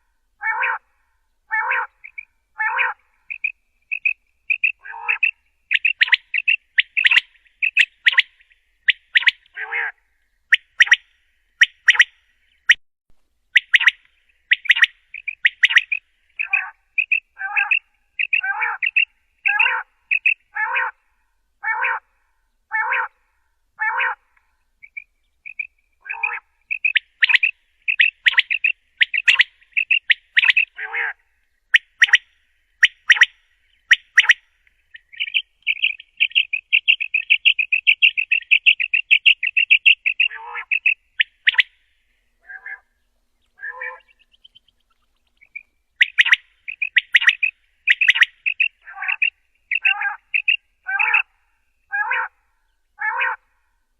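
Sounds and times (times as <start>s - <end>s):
quail calling: 0.0s - 0.9s, 1.5s - 12.8s, 13.6s - 21.0s, 21.6s - 22.1s, 22.7s - 23.2s, 23.8s - 41.8s, 42.4s - 52.4s, 53.0s - 53.5s
rapid bird trill: 1.5s - 12.8s, 13.5s - 21.0s, 24.8s - 42.9s, 43.6s - 53.4s.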